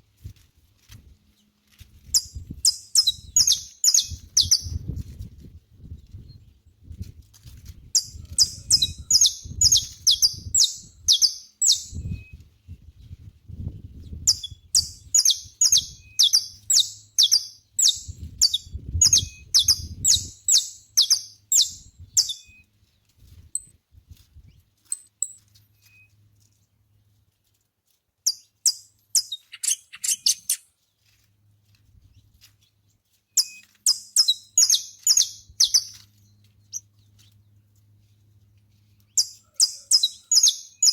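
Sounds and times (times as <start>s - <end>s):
finch singing high chirps: 2.1s - 5.0s, 7.9s - 12.4s, 14.0s - 22.6s, 28.2s - 30.6s, 33.4s - 37.4s, 39.1s - 40.9s.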